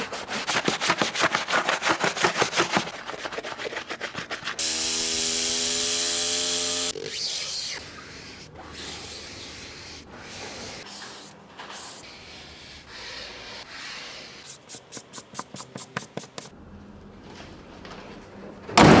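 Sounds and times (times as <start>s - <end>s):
rapid scrubbing strokes: 0.0s - 4.6s.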